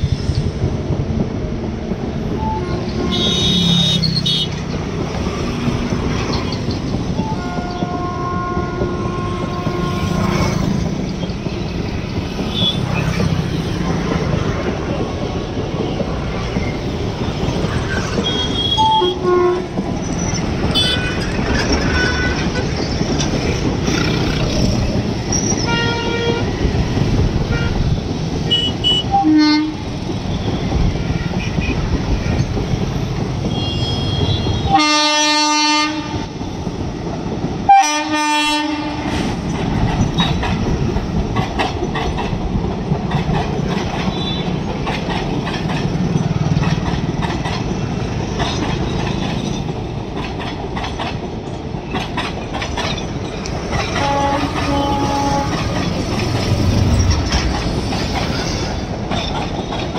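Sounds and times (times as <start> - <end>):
train wheels rumbling on rail: 0.0 - 59.9
train horn: 2.4 - 4.5, 7.2 - 10.7, 18.2 - 19.7, 25.7 - 26.6, 27.5 - 27.9, 28.5 - 29.8, 33.5 - 36.3, 37.7 - 39.1, 54.0 - 55.9
high wheel squeals: 24.2 - 25.9.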